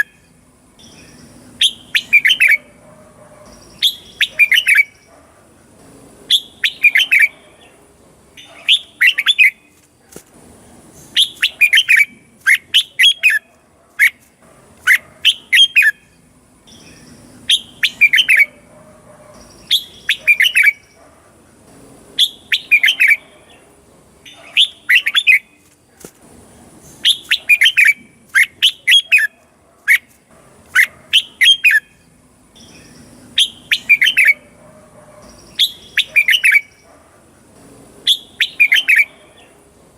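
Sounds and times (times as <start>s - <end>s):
bird singing whistled phrases: 0.8s - 2.7s, 3.7s - 5.0s, 6.3s - 7.4s, 16.7s - 18.6s, 19.6s - 20.9s, 22.2s - 23.2s, 27.0s - 29.3s, 32.6s - 34.4s, 35.4s - 36.8s, 38.1s - 39.1s.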